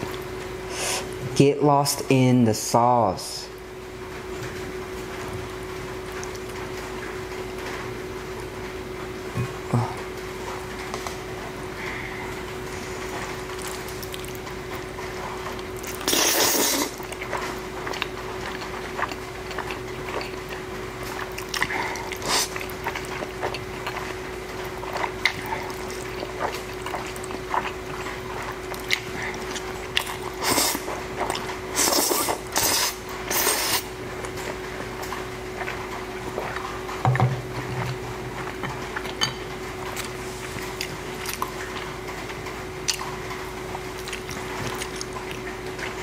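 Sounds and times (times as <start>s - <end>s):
faint hum: 0.0s - 46.0s
noodles slurped and chewed: 13.6s - 37.0s.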